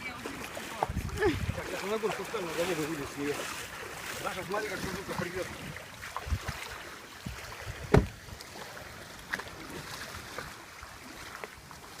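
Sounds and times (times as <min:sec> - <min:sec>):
faint wind: 0:00.0 - 0:12.0
water noise: 0:00.0 - 0:12.0
boat knocking on trailer: 0:07.9 - 0:08.2
loud thump: 0:07.9 - 0:08.2.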